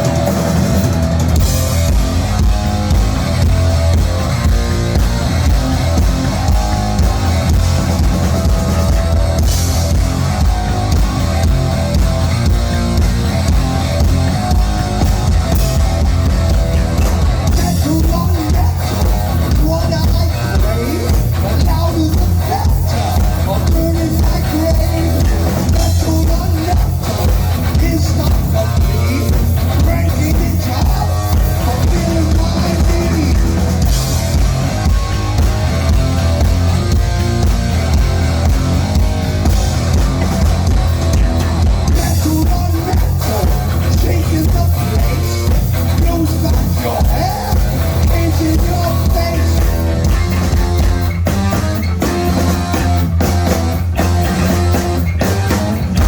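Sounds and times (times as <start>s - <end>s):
bass guitar: 0.0s - 56.0s
distorted electric guitar: 0.0s - 56.0s
pounding drum kit: 0.0s - 56.0s
person singing: 17.5s - 33.8s, 41.9s - 50.9s.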